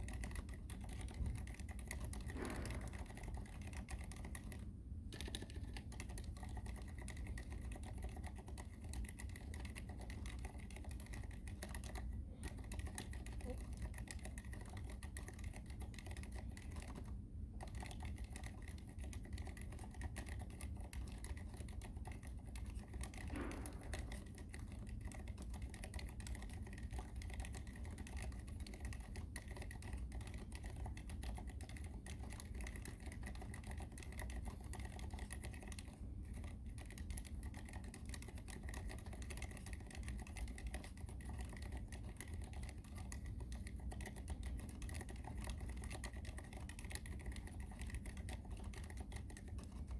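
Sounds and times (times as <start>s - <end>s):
fast typing on mechanical keyboard: 0.0s - 49.9s.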